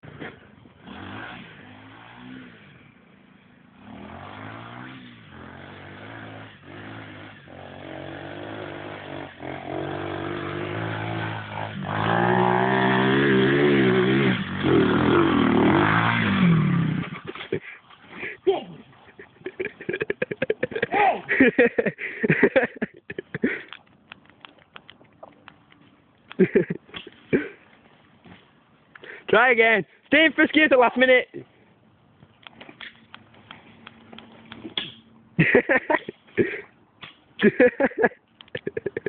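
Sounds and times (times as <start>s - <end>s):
pit bike engine revving: 0.1s - 23.6s.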